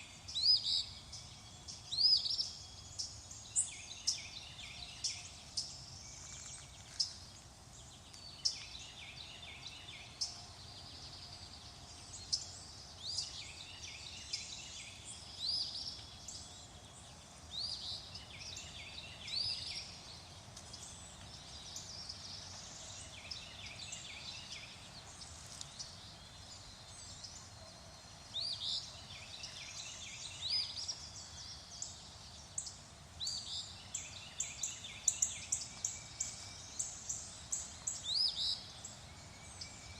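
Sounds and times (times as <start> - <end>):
faint background hiss: 0.0 - 39.9
songbirds singing: 0.0 - 39.9.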